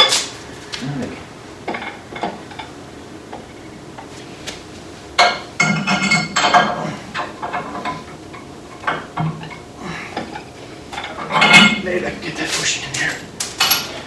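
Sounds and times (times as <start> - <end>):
metal parts clinking: 13.0 - 14.0.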